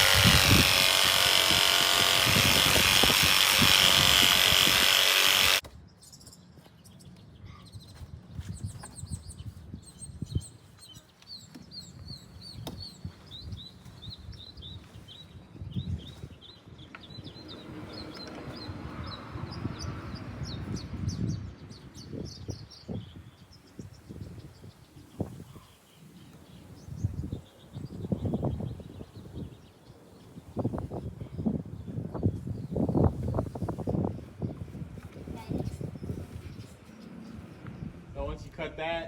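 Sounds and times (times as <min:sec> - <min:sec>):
power tool cutting wall: 0:00.0 - 0:05.6.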